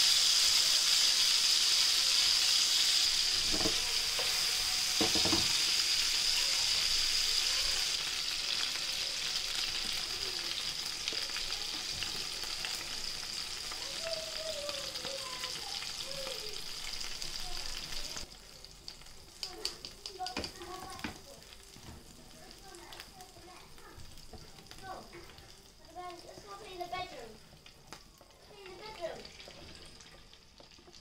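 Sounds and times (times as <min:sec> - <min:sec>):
chicken sizzling in hot oil: 0:00.0 - 0:31.0
plastic tongs clicking on pan: 0:18.9 - 0:21.2.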